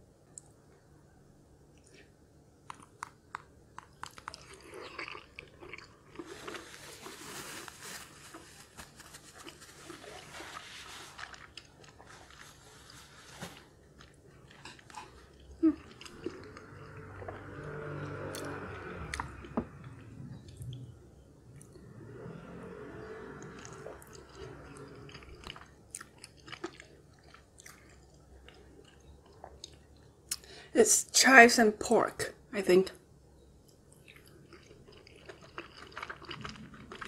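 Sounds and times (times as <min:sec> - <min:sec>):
person chewing wet mouth sounds: 0:02.7 - 0:06.7, 0:14.0 - 0:17.6, 0:23.5 - 0:30.5, 0:33.7 - 0:37.0.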